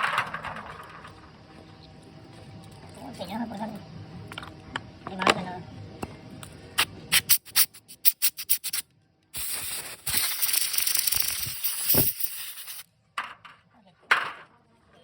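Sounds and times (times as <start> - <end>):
steady hiss: 9.4 - 12.9.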